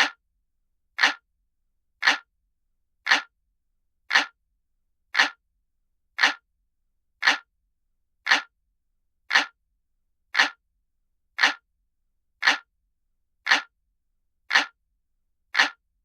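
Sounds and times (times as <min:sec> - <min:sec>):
clock ticking: 0:00.0 - 0:00.2, 0:01.0 - 0:01.2, 0:02.0 - 0:02.3, 0:03.1 - 0:03.3, 0:04.1 - 0:04.4, 0:05.2 - 0:05.4, 0:06.2 - 0:06.4, 0:07.2 - 0:07.5, 0:08.3 - 0:08.5, 0:09.3 - 0:09.6, 0:10.4 - 0:10.6, 0:11.4 - 0:11.6, 0:12.4 - 0:12.7, 0:13.5 - 0:13.7, 0:14.5 - 0:14.8, 0:15.5 - 0:15.8.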